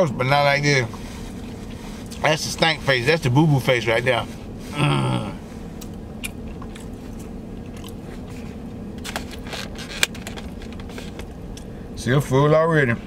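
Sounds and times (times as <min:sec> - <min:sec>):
steady background hum: 0:00.0 - 0:13.0
sharp mouth clicks: 0:05.8 - 0:06.9
soft wet chewing: 0:05.8 - 0:08.7.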